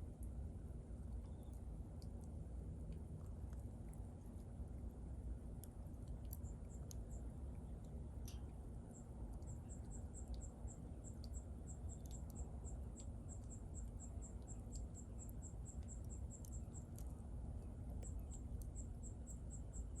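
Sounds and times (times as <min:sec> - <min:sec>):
insect chirping: 0:08.9 - 0:17.0, 0:18.0 - 0:20.0.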